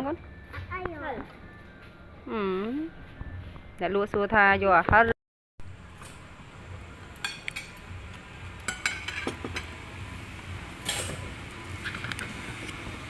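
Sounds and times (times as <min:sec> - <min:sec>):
utensils clinking on plates: 0:08.6 - 0:09.8, 0:10.8 - 0:12.3.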